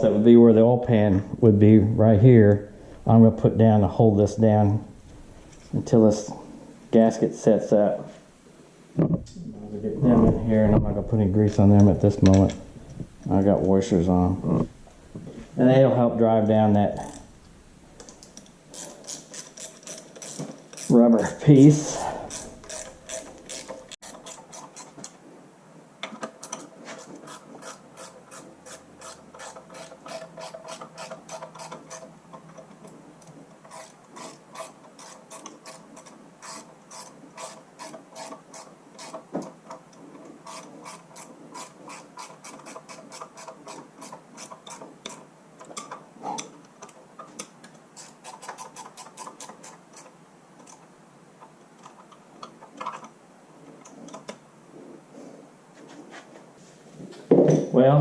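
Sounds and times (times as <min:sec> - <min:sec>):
ratchet wrench clicking: 0:18.7 - 0:21.0, 0:22.3 - 0:24.4.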